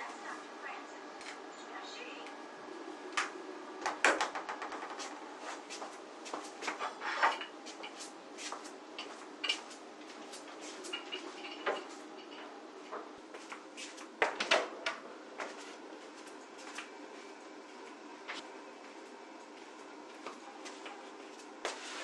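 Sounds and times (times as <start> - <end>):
household objects clicking and knocking: 3.8 - 5.2.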